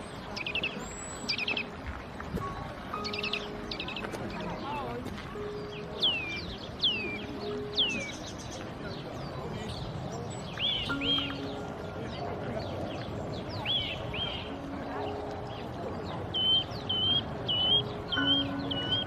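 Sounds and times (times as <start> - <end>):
small birds whistling: 5.7 - 8.6, 16.0 - 19.0.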